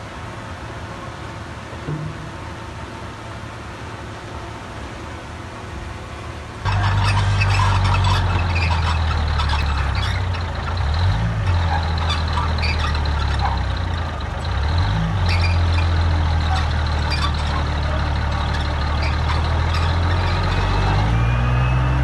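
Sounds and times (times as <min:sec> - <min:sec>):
heavy diesel engine under load: 0:00.0 - 0:22.0
rattling and clanking: 0:06.7 - 0:21.0.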